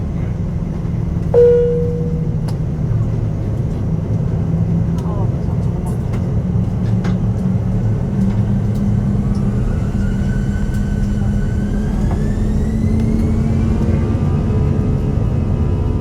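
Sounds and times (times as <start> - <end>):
jet engines rumbling: 0.0 - 16.0
faint rising whine: 1.4 - 2.8.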